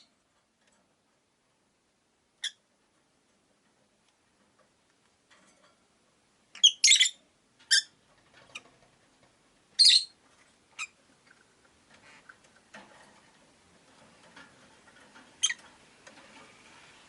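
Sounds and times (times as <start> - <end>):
lovebirds chirping: 6.6 - 7.9, 9.8 - 10.2.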